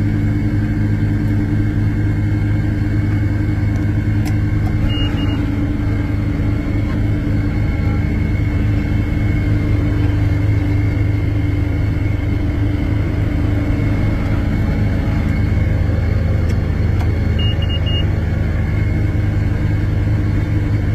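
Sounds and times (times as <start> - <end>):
diesel tractor engine running: 0.0 - 20.9
short high beeps: 4.8 - 5.4, 17.4 - 18.1.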